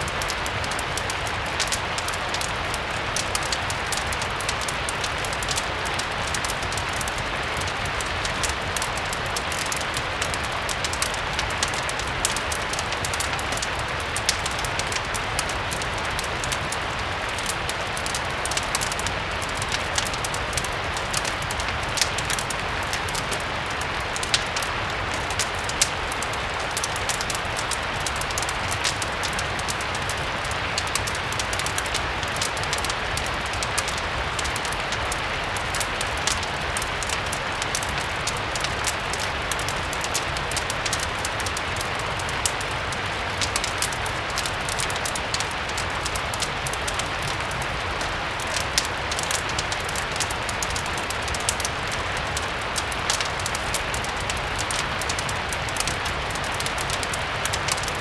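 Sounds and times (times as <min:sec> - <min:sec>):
fireplace crackling: 0:00.0 - 0:58.0
rain hiss: 0:00.0 - 0:58.0.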